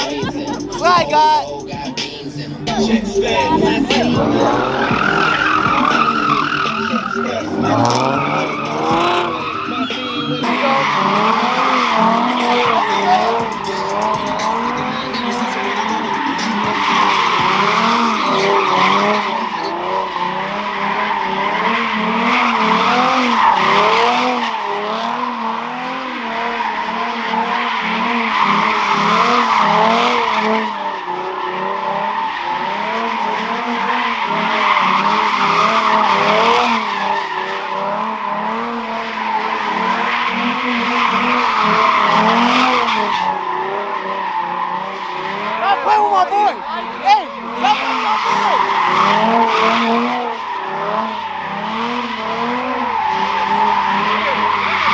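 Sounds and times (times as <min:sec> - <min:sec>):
car engine revving: 0:00.0 - 0:54.9
tyres screeching: 0:02.7 - 0:19.8, 0:45.4 - 0:50.1.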